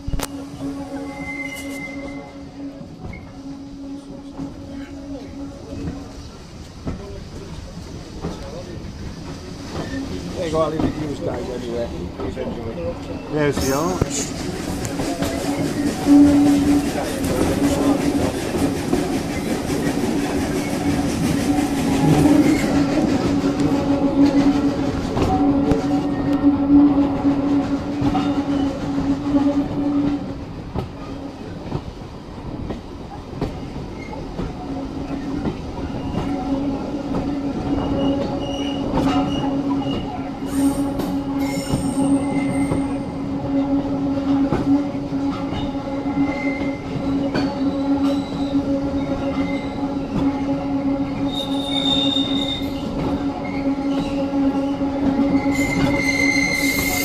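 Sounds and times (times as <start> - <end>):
wheels rumbling on rails: 0.0 - 57.0
wheel squeal: 1.1 - 2.3, 51.3 - 54.2, 55.4 - 57.0.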